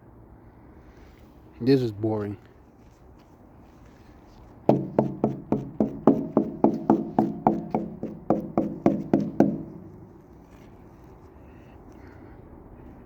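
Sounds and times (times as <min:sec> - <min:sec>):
hollow ringing knocks: 0:04.7 - 0:09.8.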